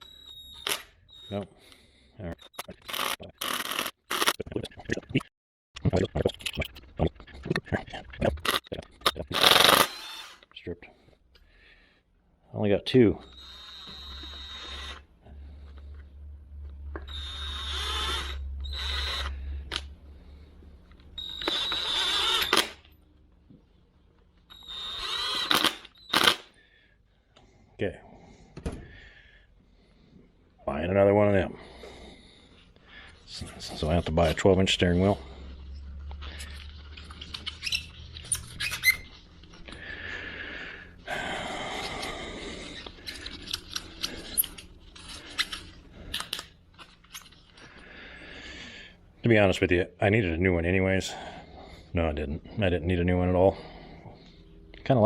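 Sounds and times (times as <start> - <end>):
rubbing squeak: 0.0 - 1.5, 13.2 - 15.0, 17.0 - 19.4, 21.2 - 22.7, 36.4 - 39.6
power drill running: 2.8 - 4.3, 9.4 - 10.4, 13.2 - 15.0, 17.1 - 19.3, 21.2 - 22.8, 24.5 - 26.4.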